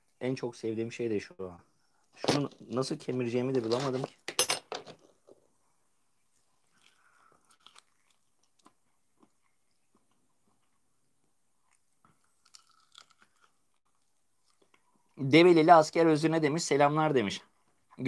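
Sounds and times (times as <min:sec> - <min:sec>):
chewing and crunching on bone: 0:06.6 - 0:11.0, 0:11.6 - 0:15.0.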